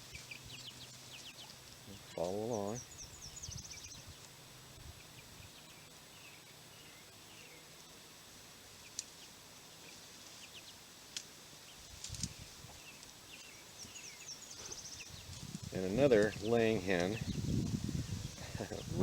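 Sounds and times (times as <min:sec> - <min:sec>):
chicks peeping: 0:00.0 - 0:07.0, 0:11.7 - 0:19.0.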